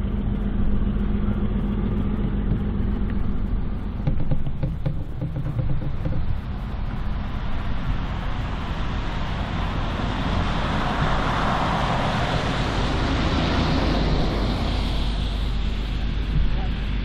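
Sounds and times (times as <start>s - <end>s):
freight train rumble: 0.0s - 17.0s
wheels on rails: 0.0s - 17.0s.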